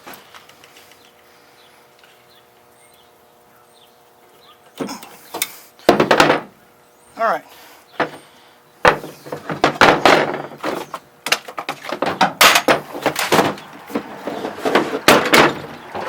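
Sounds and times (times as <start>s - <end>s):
hard objects knocking and clattering: 5.9s - 6.5s, 8.8s - 16.0s.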